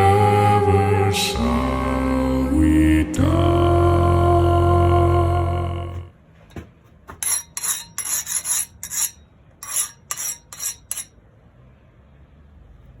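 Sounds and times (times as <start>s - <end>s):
steel scraping on metal: 7.2s - 11.1s.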